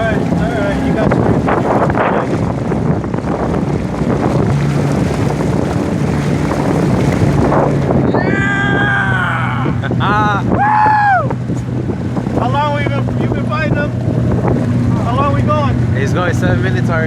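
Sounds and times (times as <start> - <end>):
small boat motor humming: 0.0 - 17.0
water noise: 0.0 - 17.0
wind buffeting microphone: 0.0 - 17.0
short rising and falling cries: 8.1 - 9.9.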